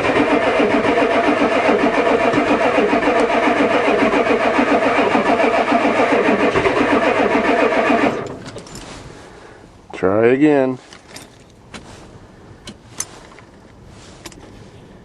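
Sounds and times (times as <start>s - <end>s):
diesel engine cranking on starter: 0.0s - 9.3s.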